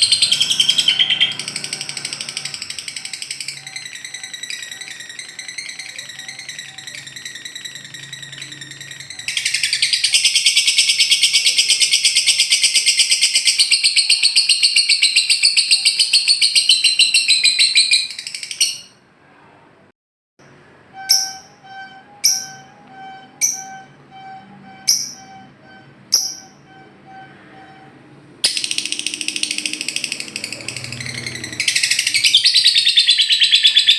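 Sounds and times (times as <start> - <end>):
bird chattering trill: 0.0 - 18.9, 28.4 - 33.9
sharp bird chirps: 0.0 - 19.0, 21.0 - 27.8, 28.5 - 33.9.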